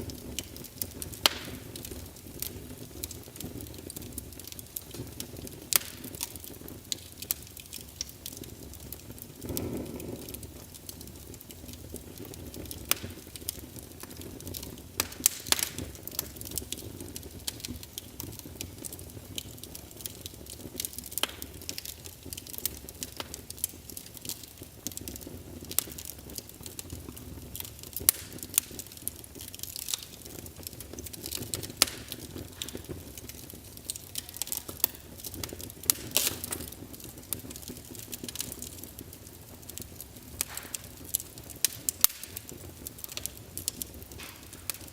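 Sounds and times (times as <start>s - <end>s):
low rumble of flames: 0.0s - 44.9s
wood fire crackling and popping: 0.0s - 44.9s.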